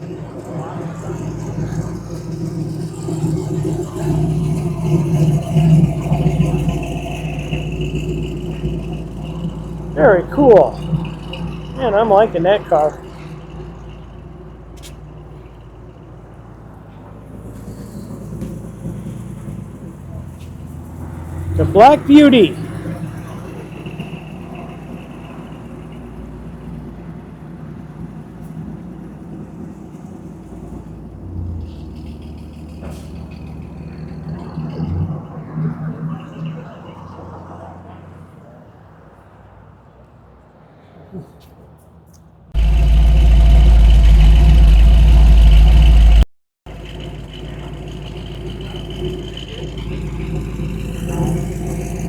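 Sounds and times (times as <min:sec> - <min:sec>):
car engine idling: 0:00.0 - 0:34.6, 0:42.6 - 0:52.0
low hum: 0:42.6 - 0:46.3.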